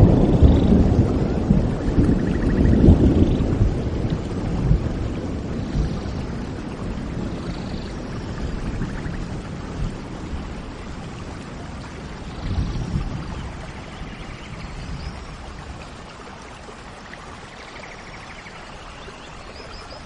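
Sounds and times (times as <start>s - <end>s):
thunder rumbling: 0.0s - 15.9s
steady rain: 0.0s - 20.0s.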